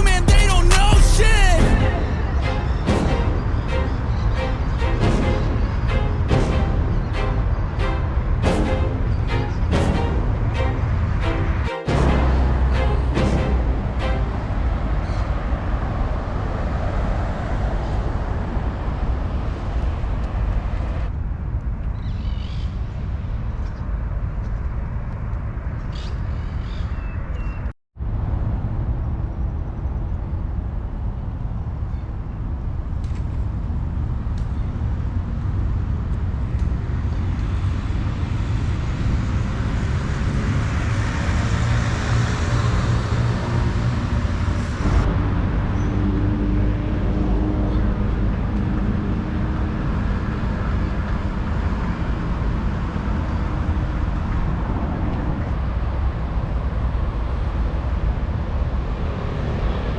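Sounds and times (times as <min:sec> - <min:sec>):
road traffic rumbling: 0:00.0 - 0:15.9.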